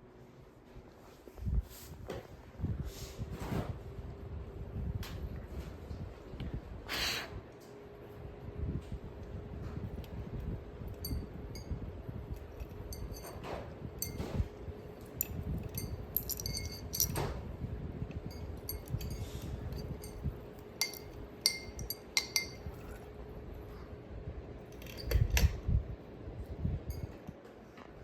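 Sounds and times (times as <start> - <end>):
ceiling fan humming: 0.0 - 28.0
light clinks of metal and glass: 10.9 - 17.4, 18.2 - 23.1, 24.7 - 25.6, 26.9 - 27.2.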